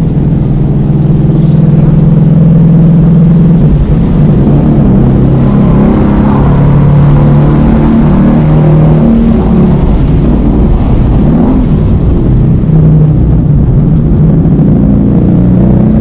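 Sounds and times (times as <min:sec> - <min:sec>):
car engine accelerating: 0:00.0 - 0:16.0
wind and tyre noise: 0:00.0 - 0:16.0.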